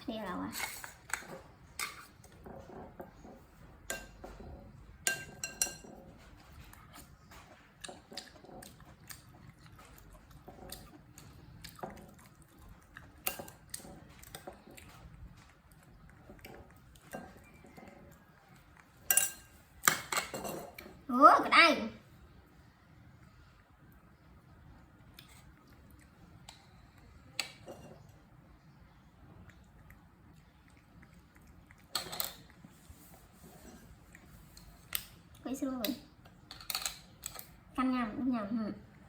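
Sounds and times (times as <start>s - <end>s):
spoon clinking against bowl: 5.0s - 6.0s, 19.0s - 19.5s.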